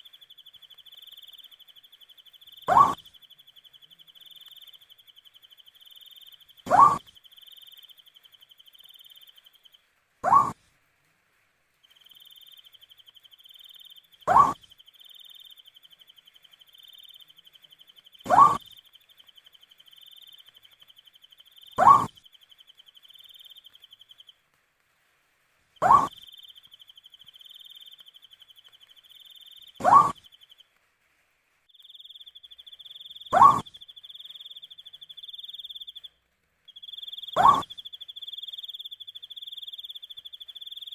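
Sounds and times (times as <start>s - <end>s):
owl hooting: 2.4s - 3.2s, 6.2s - 9.4s, 10.2s - 10.6s, 12.1s - 15.7s, 18.2s - 18.9s, 21.5s - 24.2s, 25.8s - 28.5s, 29.4s - 30.4s, 32.1s - 36.0s, 36.8s - 40.9s.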